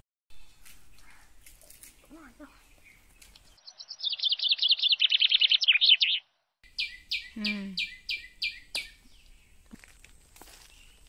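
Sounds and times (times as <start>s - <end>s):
bird trill of high chirps: 2.0s - 9.5s
bird downward sweeping notes: 3.6s - 7.3s.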